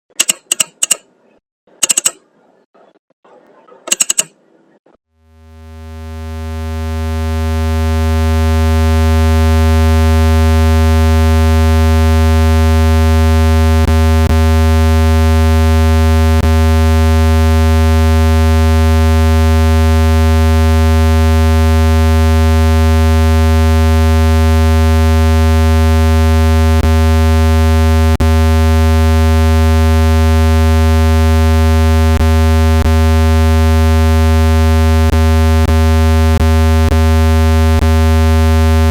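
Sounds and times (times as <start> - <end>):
brief click: 0.1 - 1.0, 1.8 - 2.2, 3.9 - 4.4
low buzzing tone: 5.2 - 38.9.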